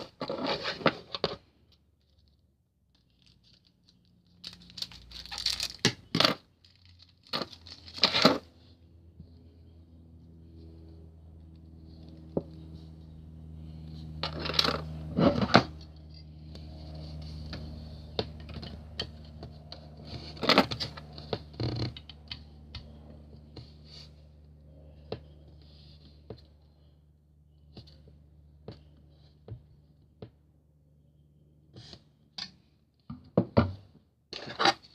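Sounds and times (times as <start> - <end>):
packaging rustling and tearing: 3.1 - 8.4.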